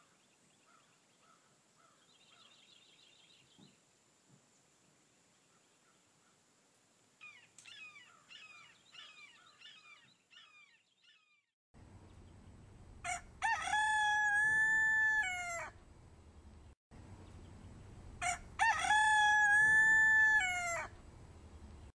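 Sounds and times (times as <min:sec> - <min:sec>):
rooster crowing: 0:13.0 - 0:15.8, 0:18.2 - 0:20.9.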